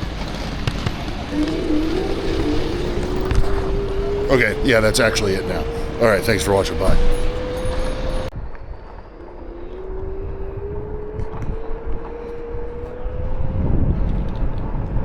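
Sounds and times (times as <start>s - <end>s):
low rumble: 1.2s - 8.5s
jet engine whine rising in pitch: 1.3s - 8.3s, 9.0s - 14.9s.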